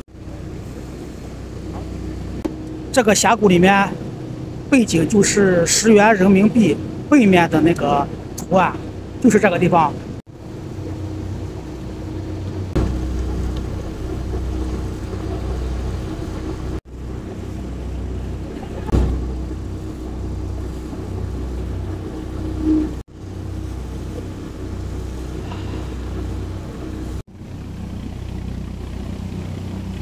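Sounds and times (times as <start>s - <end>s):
boat engine drone: 0.0s - 30.0s
low thumps: 12.4s - 23.0s.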